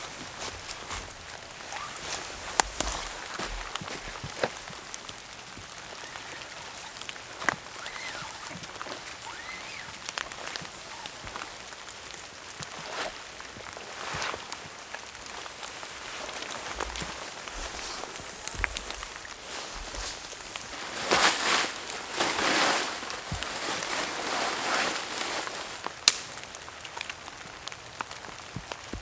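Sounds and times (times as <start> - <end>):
raindrops ticking: 0.0 - 20.7.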